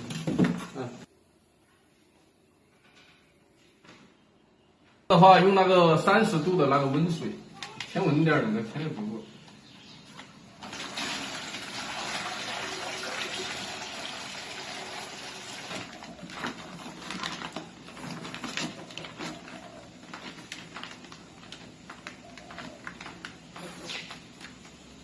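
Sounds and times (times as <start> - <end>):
water pouring into tray: 10.6 - 16.1
water trickling: 10.6 - 16.1.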